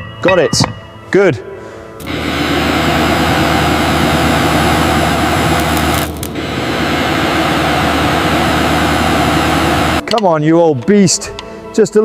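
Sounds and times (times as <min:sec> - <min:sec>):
loud rushing hiss of machinery: 0:02.0 - 0:10.0
low hum: 0:02.0 - 0:10.0.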